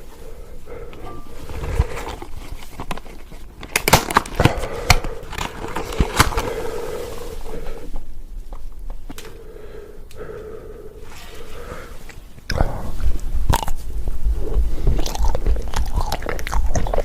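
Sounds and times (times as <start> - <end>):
chewing crunchy peanuts: 13.5 - 17.0.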